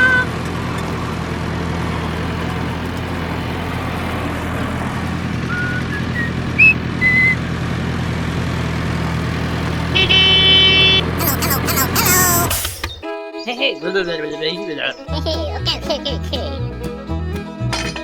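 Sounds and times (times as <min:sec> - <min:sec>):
vehicle engine droning: 0:00.0 - 0:11.4.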